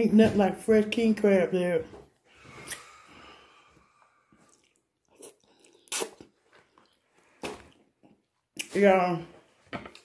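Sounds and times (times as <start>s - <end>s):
person chewing: 2.5s - 8.7s
mouth clicks and smacks: 4.4s - 8.7s.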